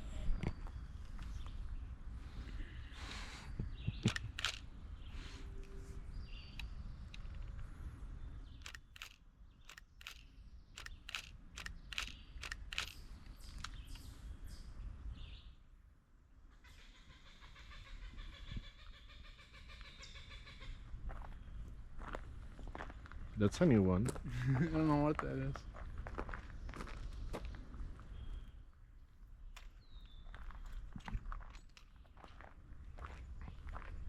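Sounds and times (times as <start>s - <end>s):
footsteps on a trail: 21.0s - 23.4s, 24.0s - 28.0s, 29.6s - 34.0s.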